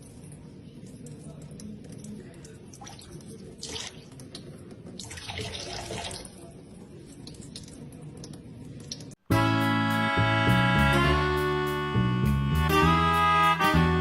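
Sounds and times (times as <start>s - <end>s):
water running and splashing: 1.0s - 6.5s.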